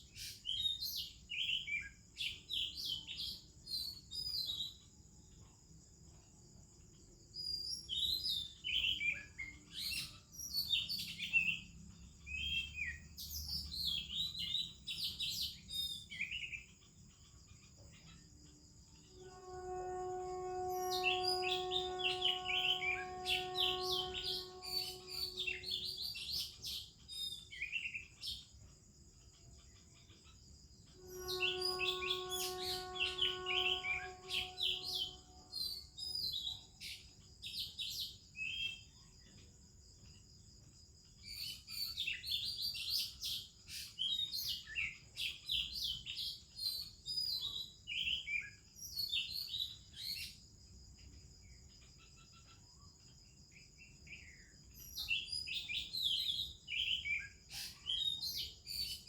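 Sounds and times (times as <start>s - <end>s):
high insect drone: 13.7s - 27.3s, 28.2s - 36.5s
bird singing whistled phrases: 19.3s - 26.7s, 31.0s - 35.4s.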